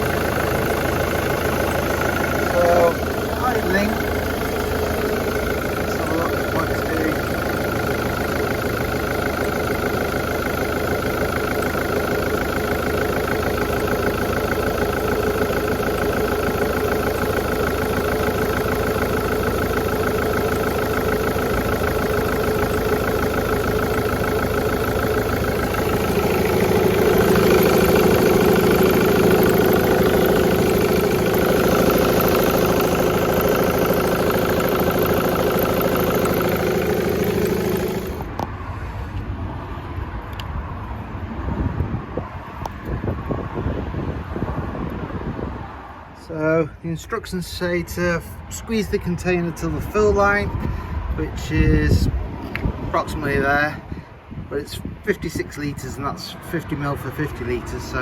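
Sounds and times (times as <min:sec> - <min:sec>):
diesel car engine idling: 0:00.0 - 0:43.0, 0:46.0 - 0:58.0.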